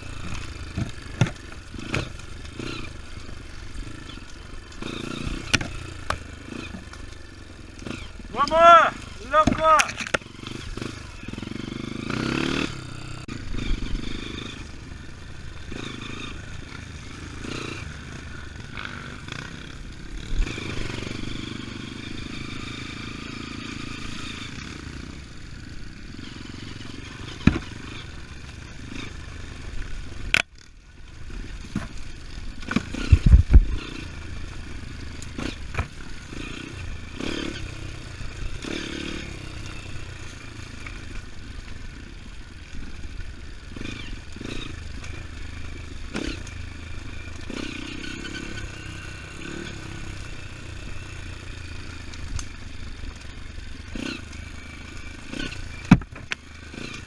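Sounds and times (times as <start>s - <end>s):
clatter and scraping: 0.0s - 8.0s, 31.5s - 36.6s
motorcycle engine revving: 0.0s - 57.0s.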